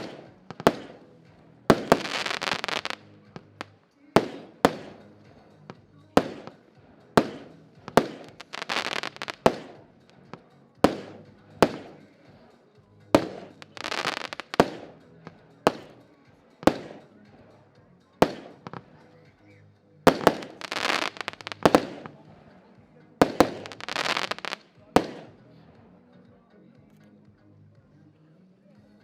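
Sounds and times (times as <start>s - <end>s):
firework bangs: 0.0s - 12.4s, 13.1s - 16.0s, 16.6s - 17.5s, 18.2s - 19.0s, 20.1s - 22.6s, 23.2s - 25.5s
firework crackling: 0.0s - 12.4s, 13.1s - 16.0s, 16.6s - 17.4s, 18.2s - 19.0s, 20.1s - 22.6s, 23.2s - 25.5s.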